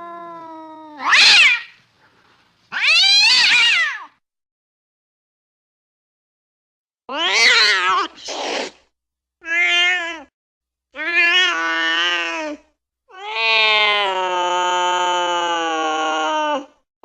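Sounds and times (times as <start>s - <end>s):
cat yowling: 0.0s - 1.8s, 2.7s - 4.2s, 7.1s - 8.3s, 9.4s - 10.3s, 11.0s - 16.8s
cat hissing: 7.3s - 8.9s.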